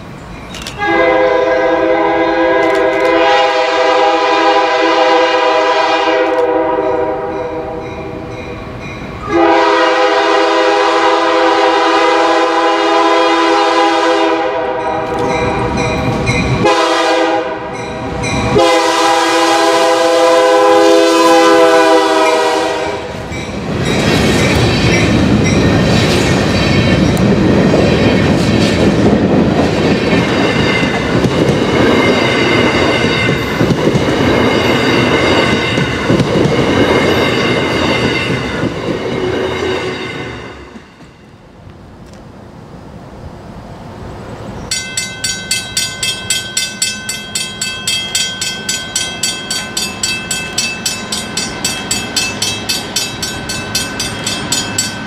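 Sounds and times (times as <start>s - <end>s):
locomotive air horn blasts: 0.8s - 7.9s, 9.2s - 15.8s, 16.6s - 17.9s, 18.5s - 23.2s
train wheels clattering over rail joints: 23.5s - 39.2s.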